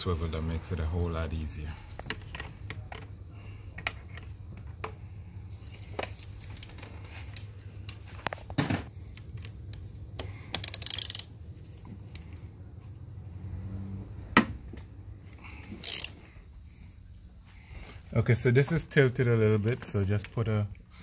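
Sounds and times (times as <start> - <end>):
rapid ratchet clicks: 10.5 - 11.3, 15.8 - 16.2.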